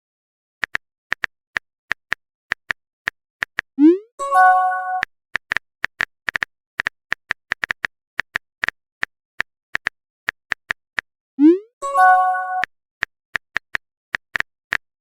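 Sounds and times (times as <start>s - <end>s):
message alert chime: 3.8s - 5.0s, 11.4s - 12.7s
phone keyboard typing clicks: 5.0s - 9.1s.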